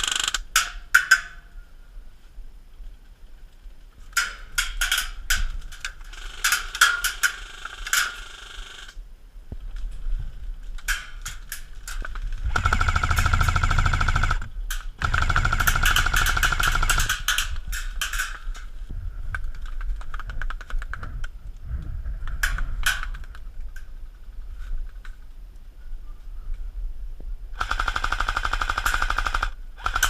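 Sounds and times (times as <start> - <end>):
airsoft rifle full-auto bursts: 0.0 - 0.4, 6.0 - 9.0, 12.4 - 17.5, 27.6 - 30.0
sharp cracks: 0.0 - 1.4, 4.1 - 9.0, 10.7 - 21.2.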